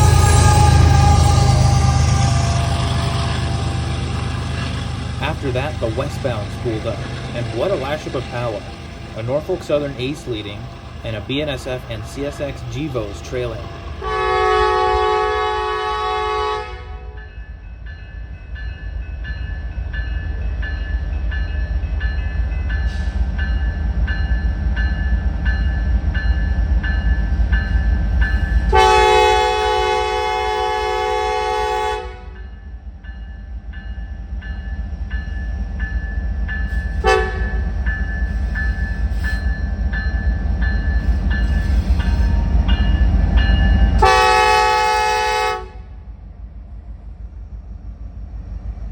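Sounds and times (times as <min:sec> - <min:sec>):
train chime horn blasts: 0:00.0 - 0:03.4, 0:13.0 - 0:17.3, 0:28.6 - 0:32.6, 0:36.8 - 0:37.8, 0:43.6 - 0:46.0
diesel locomotive rumble: 0:00.0 - 0:48.9
crossing bell dinging: 0:32.3 - 0:45.1.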